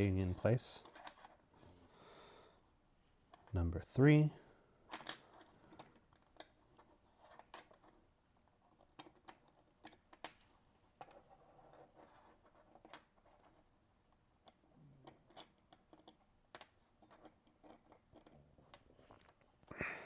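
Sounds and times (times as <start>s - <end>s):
plastic parts clicking: 4.9s - 6.6s.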